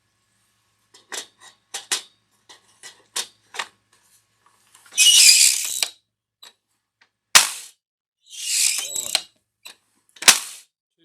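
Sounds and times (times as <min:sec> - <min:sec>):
loud rasping: 0:08.3 - 0:09.2.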